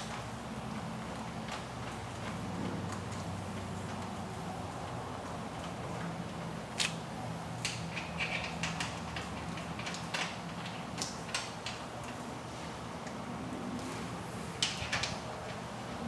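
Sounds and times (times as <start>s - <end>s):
metal hardware clicking and clinking: 7.6s - 12.2s.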